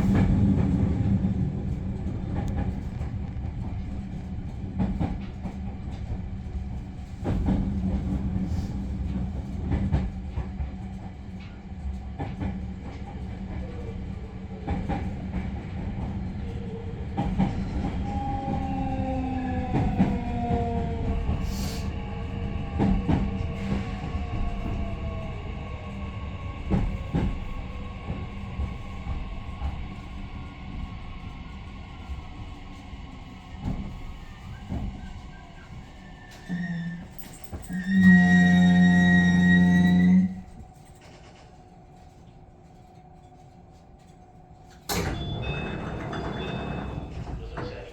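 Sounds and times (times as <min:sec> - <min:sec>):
train drive whining: 0:00.0 - 0:47.9
train wheels rumbling on rail: 0:00.0 - 0:47.9
rail-joint clicks: 0:33.6 - 0:47.9.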